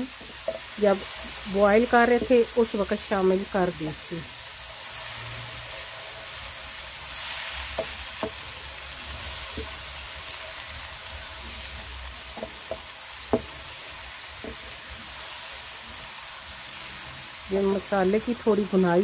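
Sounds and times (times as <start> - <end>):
masala sizzling in a pan: 0.0 - 19.0
spatula knocking against pan: 7.8 - 8.4, 12.3 - 13.6.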